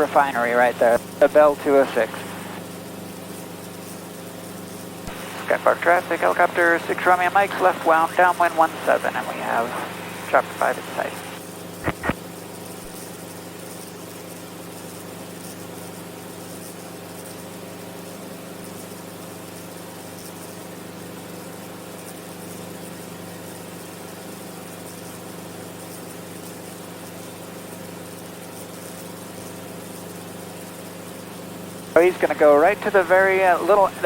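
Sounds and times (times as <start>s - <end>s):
helicopter engine and rotor drone: 0.0s - 15.1s, 31.9s - 34.0s.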